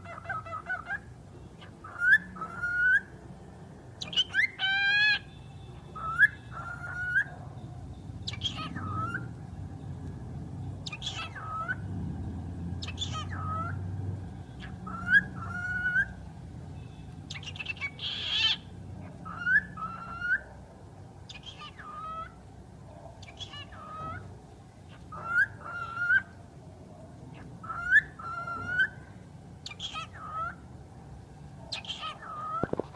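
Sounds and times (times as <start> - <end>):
bird whistling calls: 4.0 - 7.3, 8.3 - 9.3, 16.8 - 20.5, 21.3 - 22.3, 29.6 - 30.6.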